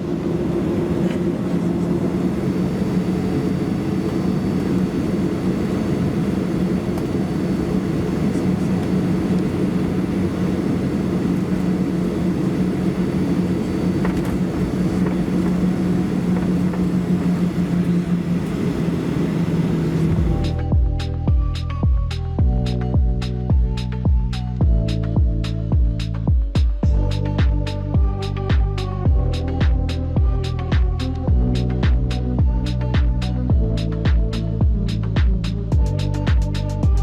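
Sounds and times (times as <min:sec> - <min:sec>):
jet engines humming: 0:00.0 - 0:22.3.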